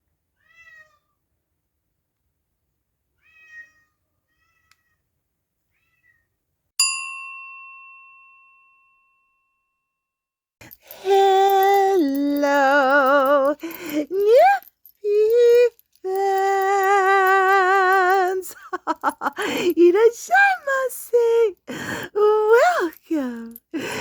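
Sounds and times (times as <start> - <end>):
cat meowing: 0.4 - 1.2, 3.2 - 5.0, 5.7 - 6.2
bright bell-like ding: 6.8 - 9.6.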